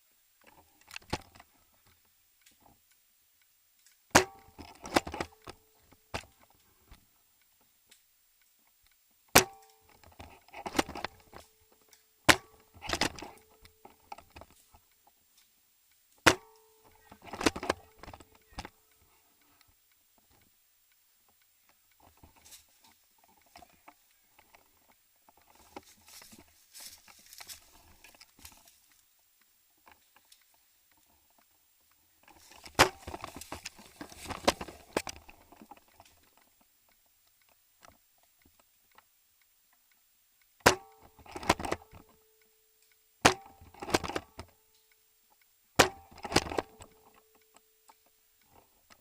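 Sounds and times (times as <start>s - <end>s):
rattle of clicks: 0.4s - 39.1s, 40.6s - 49.0s
airsoft gun shots: 4.1s - 5.3s, 9.4s - 9.7s, 16.3s - 16.6s, 40.6s - 41.8s, 43.2s - 44.2s, 45.8s - 46.6s.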